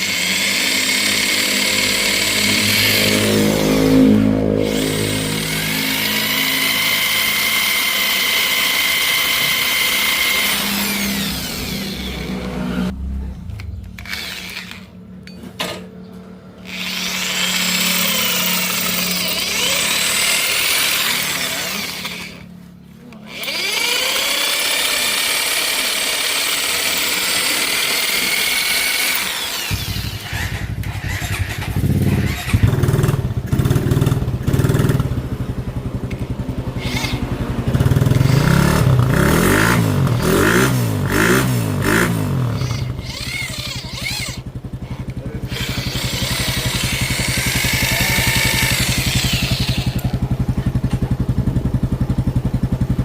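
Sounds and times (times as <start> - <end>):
power drill whine: 0.0 - 12.9, 13.9 - 15.0, 16.6 - 22.6, 23.2 - 33.2, 36.8 - 37.3, 42.5 - 50.2
motorcycle engine rumble: 9.9 - 17.2, 29.6 - 53.0.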